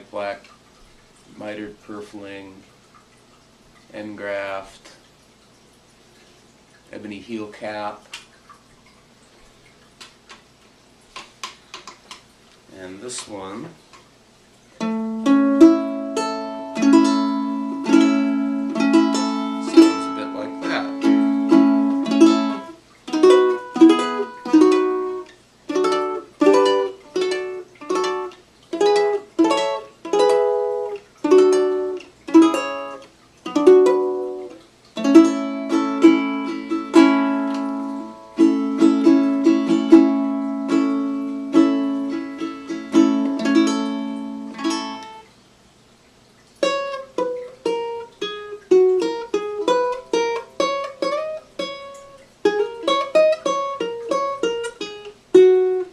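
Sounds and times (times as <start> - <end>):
ukulele plucked notes: 14.8 - 45.2, 46.6 - 55.9
ukulele strummed chords: 14.8 - 45.2, 46.6 - 55.9.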